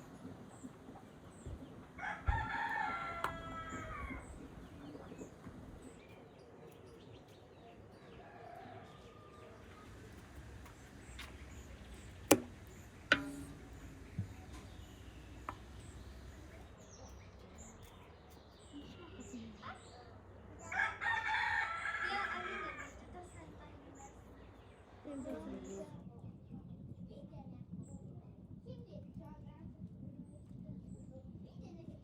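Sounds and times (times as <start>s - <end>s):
rooster crowing: 2.0s - 4.5s, 20.7s - 22.9s
sharp knocks: 9.8s - 16.6s.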